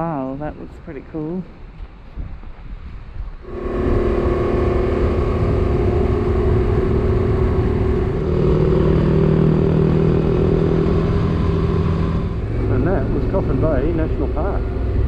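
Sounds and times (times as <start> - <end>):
lower engine tone: 3.4 - 15.0
motorcycle engine running: 3.4 - 15.0.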